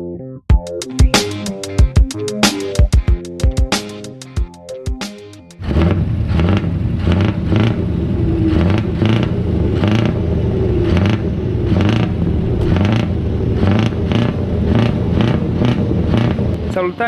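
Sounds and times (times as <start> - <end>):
truck engine running: 5.6 - 17.0.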